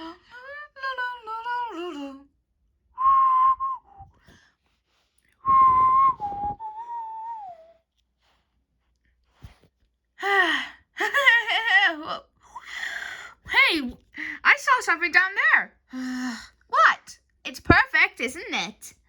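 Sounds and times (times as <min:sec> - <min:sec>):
voice gliding up and down: 0:05.5 - 0:07.6
high whistle blasts: 0:05.5 - 0:07.7.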